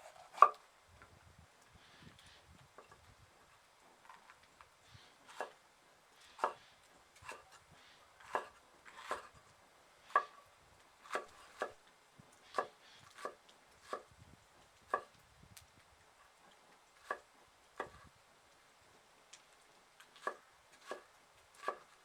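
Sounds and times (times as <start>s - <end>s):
knife chopping on cutting board: 0.0s - 0.6s, 6.4s - 6.6s, 8.2s - 9.3s.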